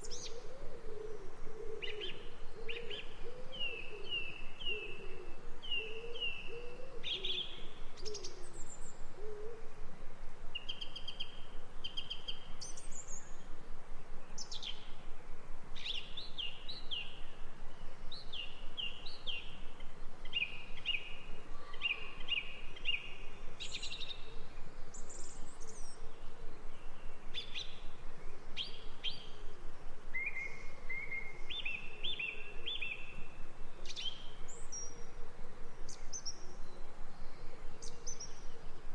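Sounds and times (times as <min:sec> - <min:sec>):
steady background hiss: 0:00.0 - 0:38.9
birds singing high chirps: 0:30.2 - 0:35.2.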